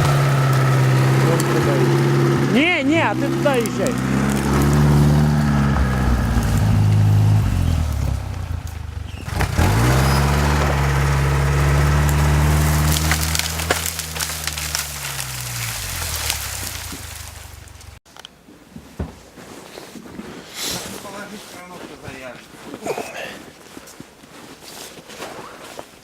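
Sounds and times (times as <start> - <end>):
sharp cracks: 0.0 - 18.0
vehicle engine pulling under load: 0.0 - 18.0.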